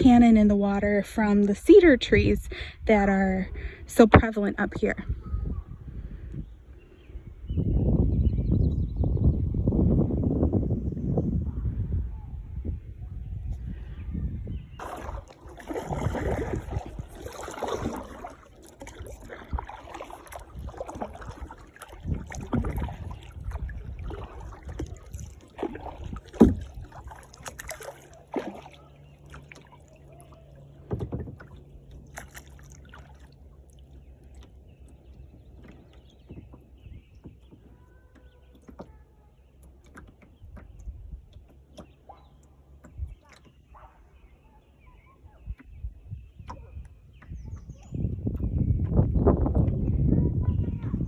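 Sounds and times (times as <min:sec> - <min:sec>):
paddle strokes splashing water: 0:14.7 - 0:51.0
water drips: 0:14.8 - 0:43.9.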